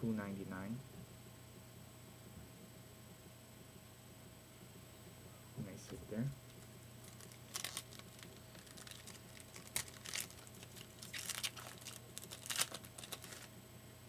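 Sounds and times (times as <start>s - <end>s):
plastic packaging crinkling: 6.5s - 13.5s.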